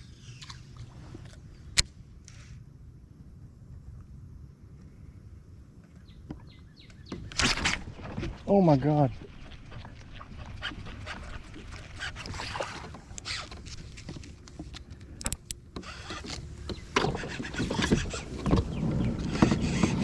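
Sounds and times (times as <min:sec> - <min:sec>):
water sloshing: 0:07.1 - 0:20.0
knocks and clicks on kayak: 0:12.0 - 0:20.0.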